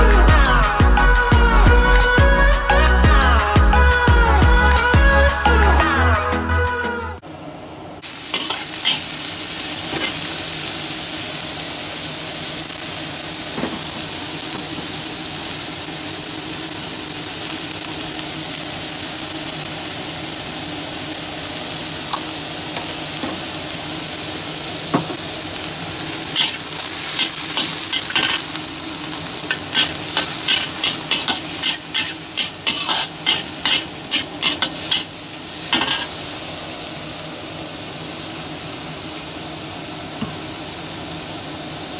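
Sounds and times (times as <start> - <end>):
vegetables sizzling in oil: 7.4 - 41.9
spatula scraping a wok: 8.3 - 9.2, 9.9 - 10.4, 26.3 - 36.2.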